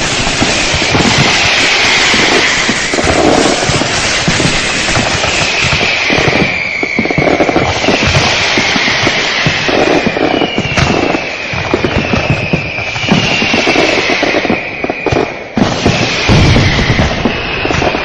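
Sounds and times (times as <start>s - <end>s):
fireworks crackling bangs: 0.0s - 18.0s
whistling fireworks: 0.0s - 18.0s.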